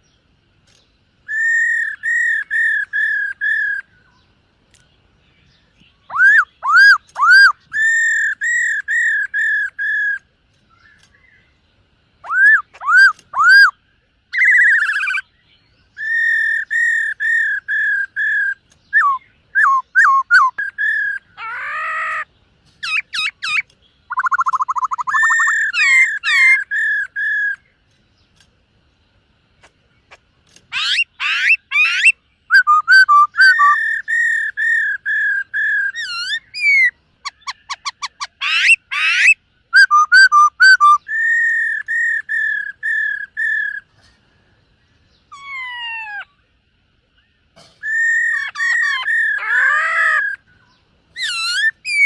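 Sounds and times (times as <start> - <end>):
bird singing whistled phrases: 1.2 - 4.2, 6.0 - 11.4, 12.2 - 27.7, 30.7 - 43.9, 51.2 - 52.0.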